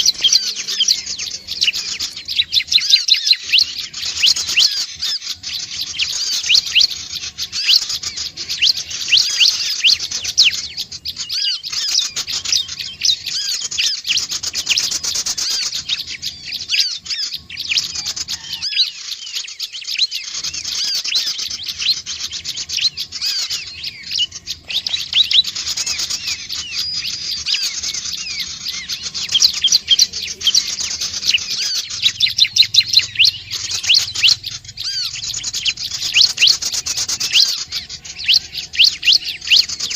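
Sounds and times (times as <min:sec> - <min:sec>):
bird's fast high chirps: 0:00.0 - 0:39.9.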